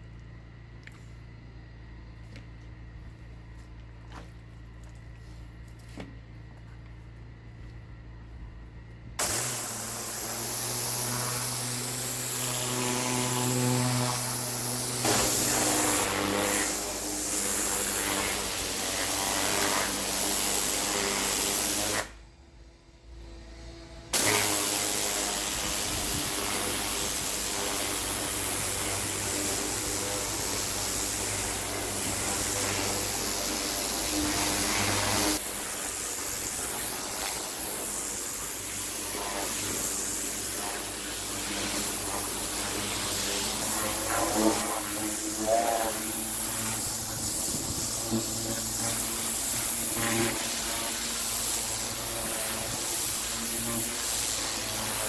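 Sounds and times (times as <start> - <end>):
pressure washer motor humming: 8.8 - 22.2, 23.2 - 55.0
water jet hissing on concrete: 9.2 - 22.1, 24.2 - 55.0.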